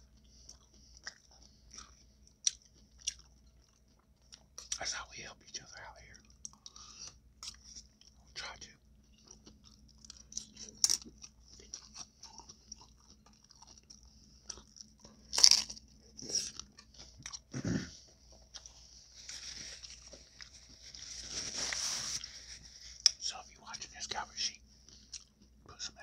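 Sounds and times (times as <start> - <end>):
wet chewing with mouth clicks: 0.0 - 4.8, 6.2 - 8.3, 8.9 - 20.9, 24.8 - 25.6
crunching bites: 9.6 - 17.5.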